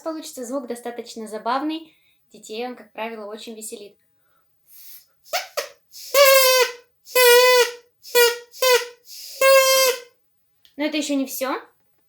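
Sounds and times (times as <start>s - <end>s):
straw reed pipe buzzy honks: 5.3s - 10.1s.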